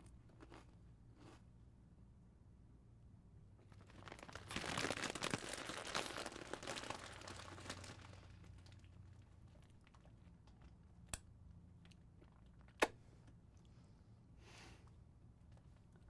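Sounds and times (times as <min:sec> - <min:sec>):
chip bag crinkling: 0:03.6 - 0:10.8.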